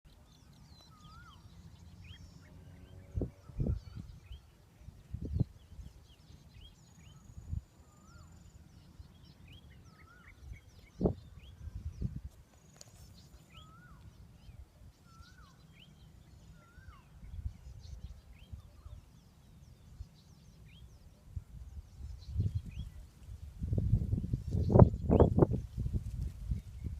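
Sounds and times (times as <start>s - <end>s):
small birds chirping: 0.1s - 26.9s.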